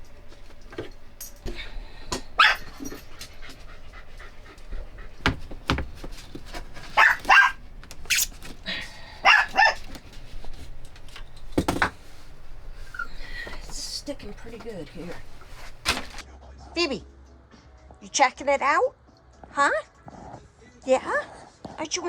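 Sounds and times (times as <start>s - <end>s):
dog barking: 2.1s - 4.0s, 6.5s - 8.2s, 9.0s - 10.3s.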